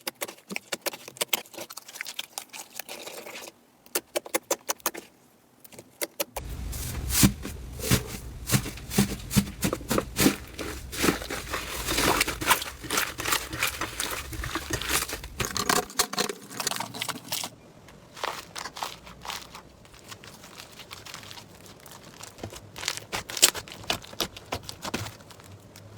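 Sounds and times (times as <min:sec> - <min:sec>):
low hum: 0:06.4 - 0:15.9.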